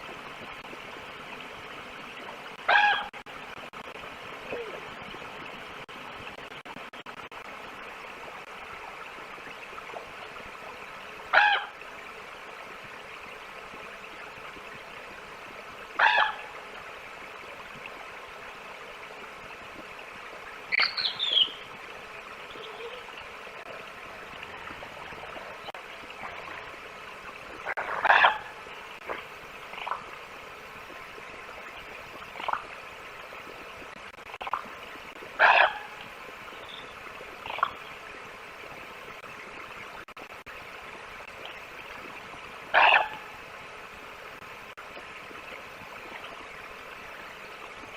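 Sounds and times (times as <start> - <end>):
bird harsh calls: 20.7 - 21.6.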